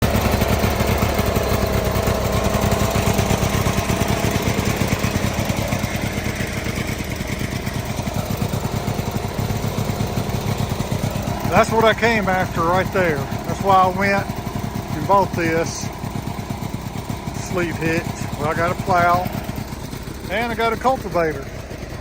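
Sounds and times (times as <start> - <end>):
garden tractor engine running: 0.0 - 22.0.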